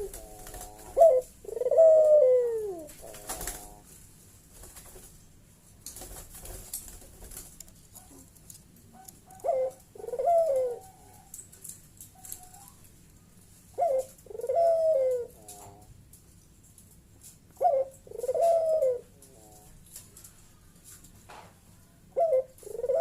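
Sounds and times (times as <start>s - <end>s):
dove cooing: 0.0s - 3.9s, 8.9s - 11.3s, 13.7s - 15.9s, 17.6s - 19.8s, 22.1s - 23.0s.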